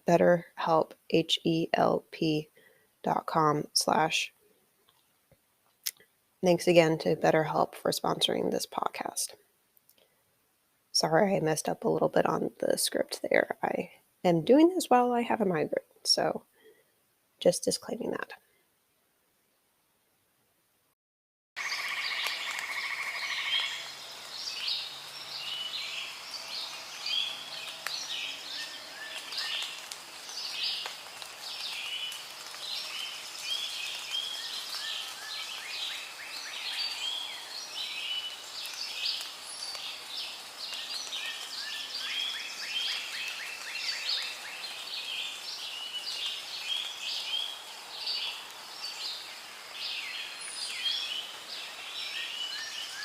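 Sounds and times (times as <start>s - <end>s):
soft background hiss: 0.0s - 20.9s, 21.8s - 53.0s
birds chirping and trilling: 21.6s - 53.0s.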